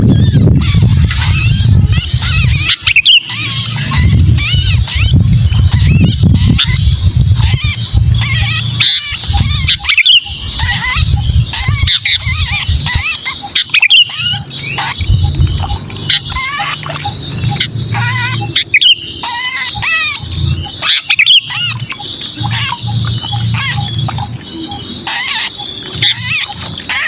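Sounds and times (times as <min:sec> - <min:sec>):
bird harsh distress calls: 0:00.0 - 0:27.0
low rumble: 0:14.8 - 0:18.6.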